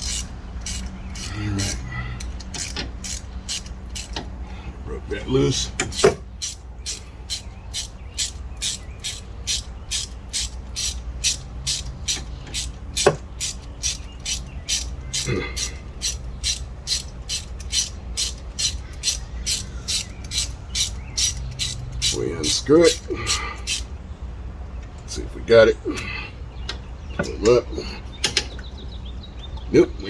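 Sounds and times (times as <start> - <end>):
socket ratchet clicking: 0.0 - 4.3, 5.8 - 23.9.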